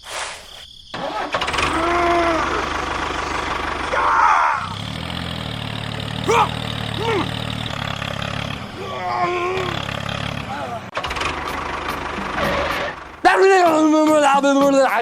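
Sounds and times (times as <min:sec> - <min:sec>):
small engine cranking and idling: 0:01.0 - 0:13.4
person exclaiming: 0:01.7 - 0:02.7, 0:06.2 - 0:07.4, 0:08.8 - 0:09.8.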